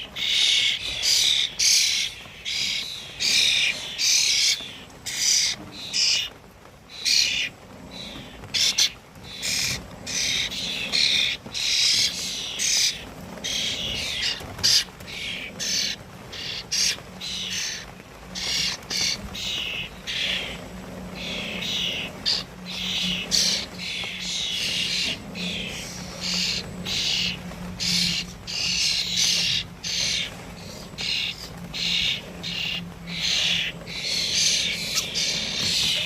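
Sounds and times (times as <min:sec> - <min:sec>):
songbirds chirping: 0:00.0 - 0:36.0.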